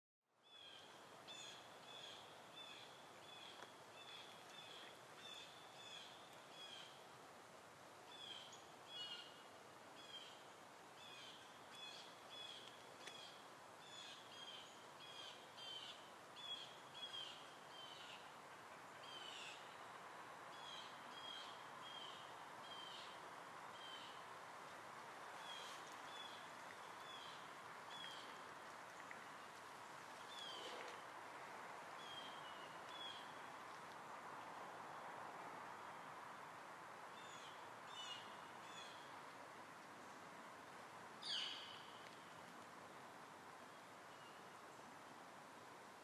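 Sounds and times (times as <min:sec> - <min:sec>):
soft hiss: 0:00.4 - 0:46.0
faint bird calls: 0:30.2 - 0:31.0.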